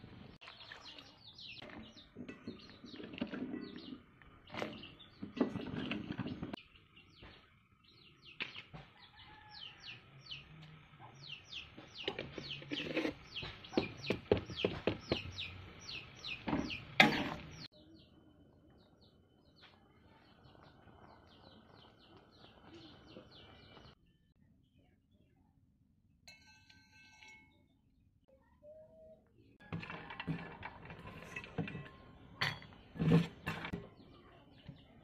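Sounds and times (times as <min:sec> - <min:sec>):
birds chirping: 0:00.2 - 0:25.4.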